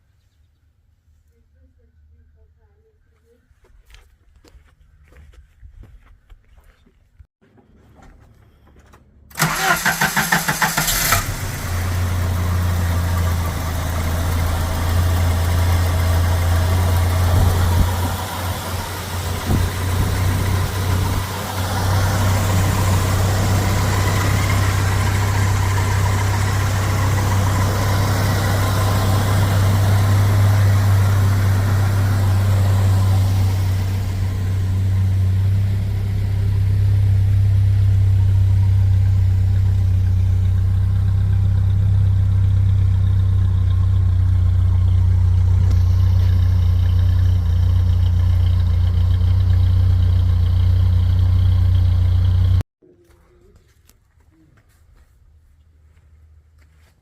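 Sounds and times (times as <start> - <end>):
car engine starting and idling: 8.0 - 52.6.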